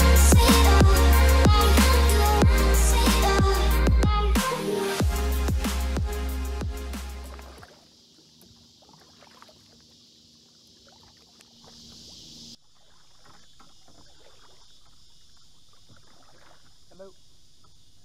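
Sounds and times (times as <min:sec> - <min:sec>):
paddle splashes in water: 0:07.3 - 0:10.0, 0:10.8 - 0:17.8
steady hiss: 0:09.7 - 0:12.6.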